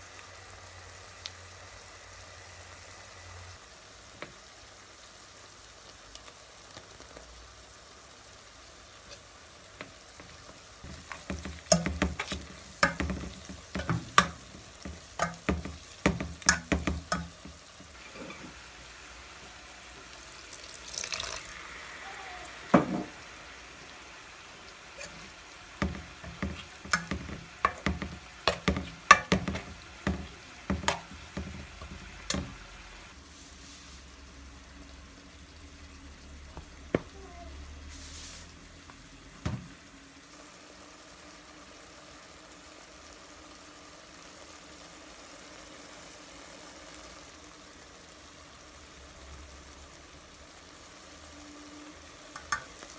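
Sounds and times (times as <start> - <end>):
mince frying in a pan: 0.0 - 52.9
spoon knocking and scraping pan: 9.8 - 18.6, 22.7 - 23.2, 25.0 - 32.7, 52.4 - 52.8.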